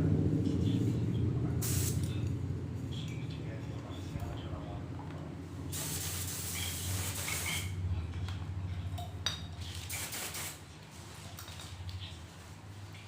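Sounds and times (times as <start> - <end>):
spray paint hissing: 1.6 - 2.1, 5.7 - 7.8, 9.7 - 10.6.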